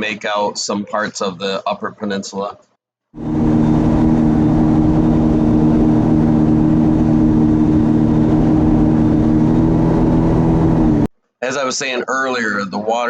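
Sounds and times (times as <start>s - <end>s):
jet ski engine running: 3.2s - 11.1s
water and wind rushing: 3.2s - 11.1s.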